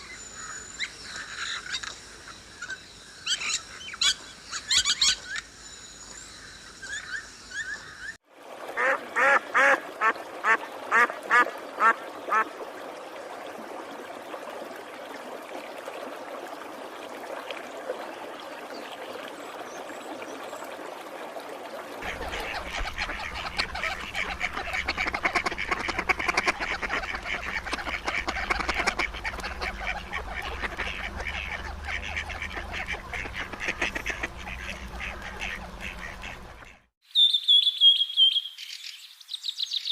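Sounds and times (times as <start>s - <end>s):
birds chirping: 0.0s - 8.2s, 22.0s - 39.9s
birds chattering: 22.0s - 36.8s.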